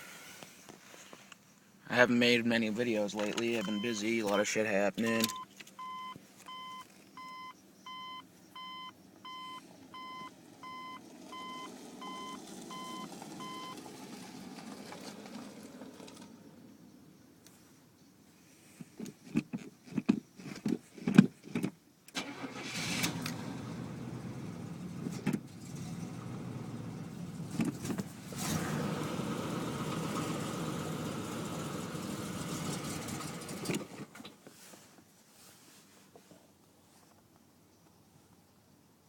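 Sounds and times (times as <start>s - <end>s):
car engine running: 23.1s - 34.0s.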